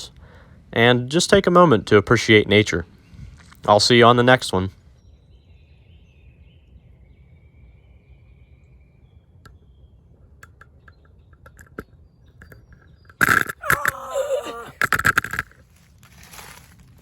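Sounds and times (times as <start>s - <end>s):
low steady rumble: 0.0s - 13.1s
distant bird calls: 2.3s - 16.9s.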